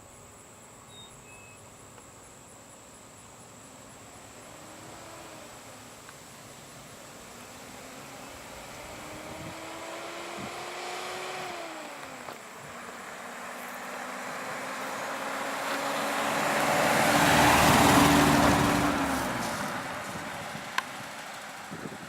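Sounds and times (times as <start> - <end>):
vehicle moving away: 3.6 - 22.0
vehicle driving past: 6.7 - 22.0.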